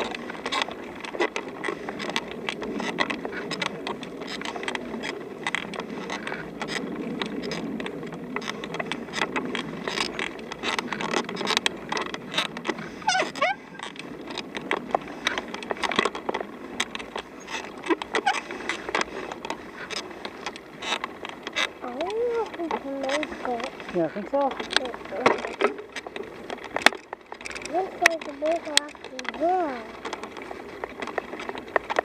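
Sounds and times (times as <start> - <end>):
bicycle rolling on dirt: 0.0 - 32.0
bike rattles and clicks: 0.0 - 32.0
squeaks: 13.0 - 14.0.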